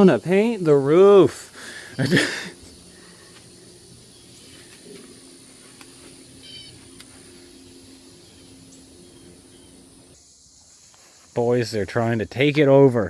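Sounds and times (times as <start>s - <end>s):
faint steady low hum: 0.0s - 10.3s
light ticks: 5.7s - 6.1s
short bird-like chirp: 6.4s - 7.6s.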